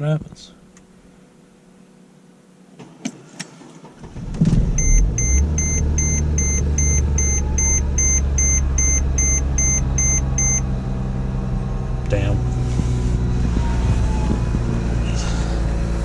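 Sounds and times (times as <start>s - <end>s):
diesel engine starting and idling: 3.6s - 16.0s
warning chime beeping: 4.8s - 10.7s.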